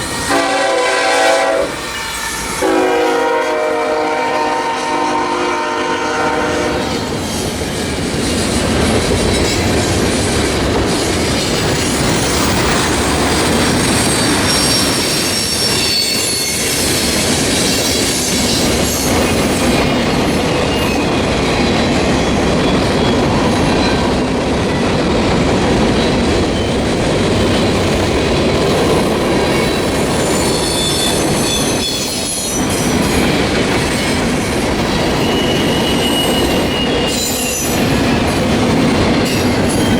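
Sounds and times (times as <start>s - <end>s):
train cars rumbling over track: 0.0s - 39.9s
locomotive air horn: 0.1s - 1.8s, 2.6s - 7.0s
high-pitched wheel squeal: 11.8s - 19.7s, 29.6s - 32.9s, 35.2s - 37.8s.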